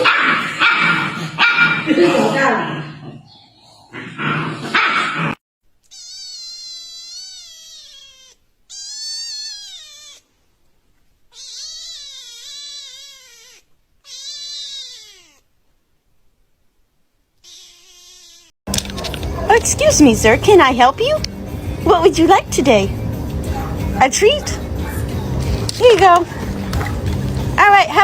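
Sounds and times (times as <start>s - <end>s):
cat meowing: 5.8s - 10.3s, 11.3s - 15.5s, 17.4s - 18.5s.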